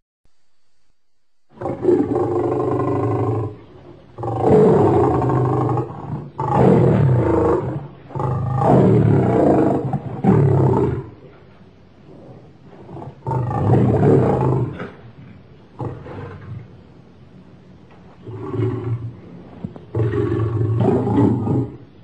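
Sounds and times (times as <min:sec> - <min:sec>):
lion roaring: 0:01.6 - 0:11.2, 0:12.1 - 0:15.0, 0:15.7 - 0:16.8, 0:18.2 - 0:21.9.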